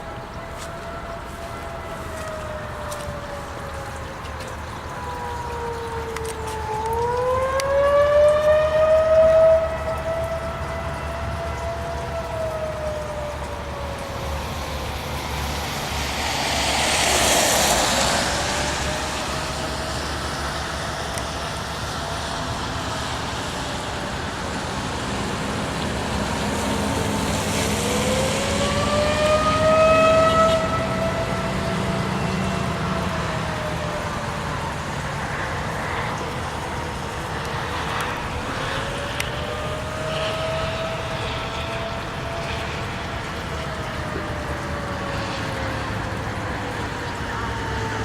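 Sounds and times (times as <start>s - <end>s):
storm warning siren wailing: 0.0s - 48.0s
vehicle rushing past: 13.7s - 24.1s, 24.8s - 34.3s, 35.3s - 48.0s.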